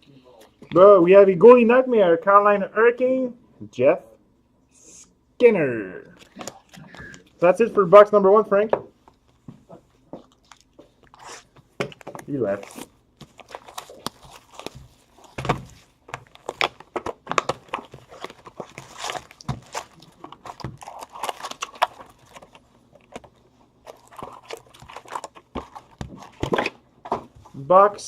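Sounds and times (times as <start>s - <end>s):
foil wrappers crinkling: 10.3s - 26.8s
cardboard boxes clicking and tapping: 13.2s - 23.4s, 24.0s - 27.4s.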